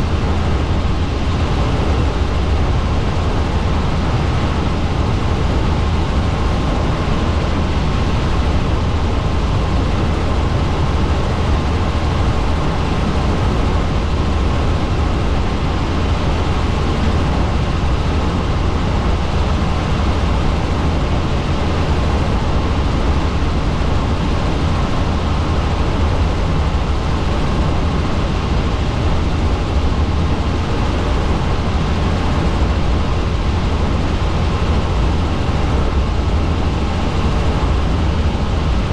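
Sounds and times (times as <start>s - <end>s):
helicopter engine and rotors: 0.0s - 38.9s.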